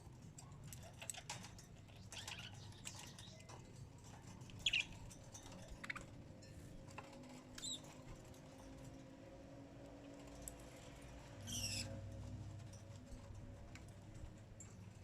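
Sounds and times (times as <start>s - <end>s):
small bird chirping: 1.1s - 3.5s, 4.5s - 5.1s, 5.7s - 6.1s, 7.6s - 8.0s, 11.4s - 12.0s
light clicks and taps: 12.1s - 15.0s.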